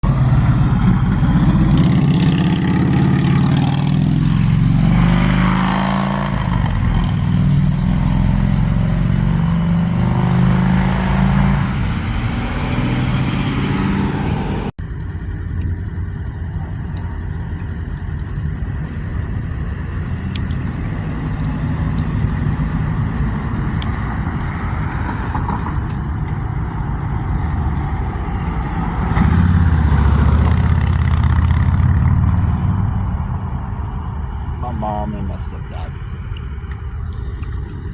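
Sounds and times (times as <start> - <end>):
motorcycle engine running: 30.0 - 32.4.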